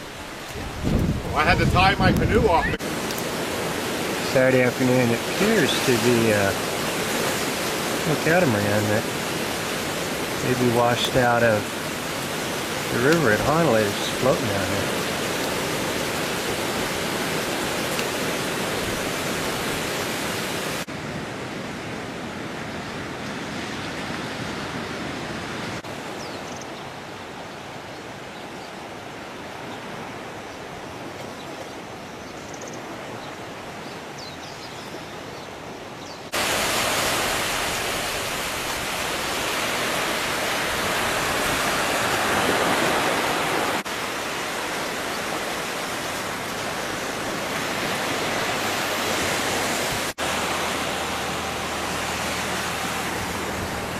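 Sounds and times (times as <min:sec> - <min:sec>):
fast-flowing river water: 0:00.0 - 0:21.0, 0:35.2 - 0:53.9.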